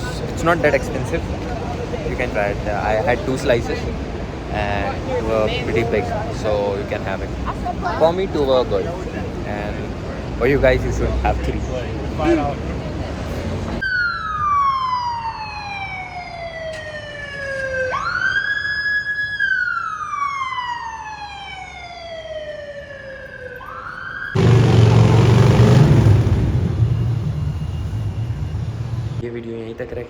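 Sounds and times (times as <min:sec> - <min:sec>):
street noise rumble: 0:00.0 - 0:19.0, 0:20.1 - 0:29.4
emergency siren wailing: 0:13.8 - 0:29.2.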